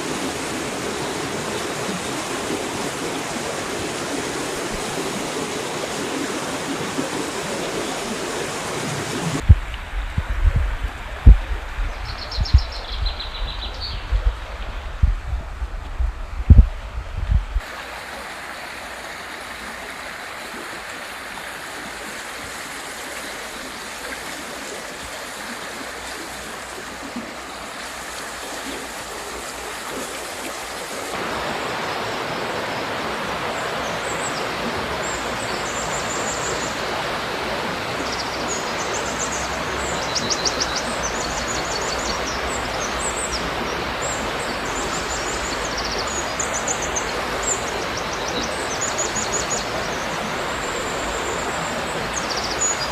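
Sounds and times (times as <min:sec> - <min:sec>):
river rushing over rocks: 0:00.0 - 0:52.9
small birds chirping: 0:11.2 - 0:15.1.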